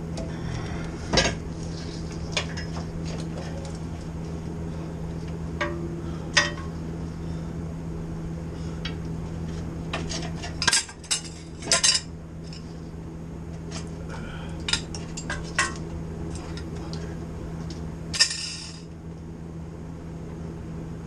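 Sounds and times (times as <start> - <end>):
steady low hum: 0.0 - 21.0
metal tools clanking: 10.0 - 12.7.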